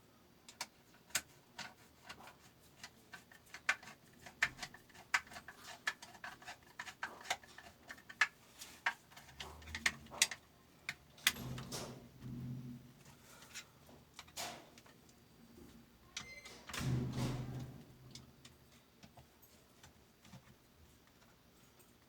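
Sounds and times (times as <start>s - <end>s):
small clicks and taps: 0.5s - 11.8s.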